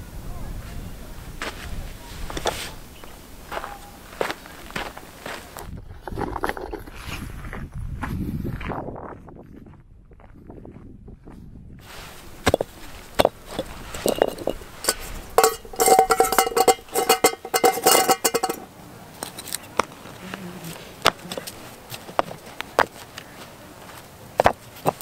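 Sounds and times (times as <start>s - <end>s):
metal cookware clattering: 12.4s - 19.5s.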